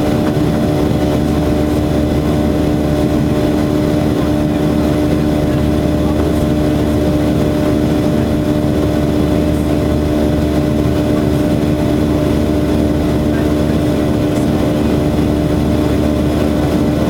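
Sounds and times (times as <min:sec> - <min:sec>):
constant hum tone: 0:00.0 - 0:17.0
jet engines droning: 0:00.0 - 0:17.0.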